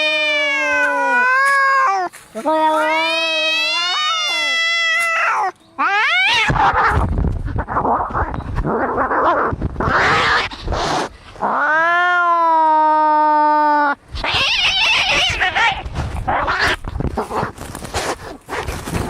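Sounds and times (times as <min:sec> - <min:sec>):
cat yowling: 0:00.0 - 0:02.1, 0:02.7 - 0:07.0, 0:11.5 - 0:16.8
cats hissing and spitting: 0:06.4 - 0:11.5.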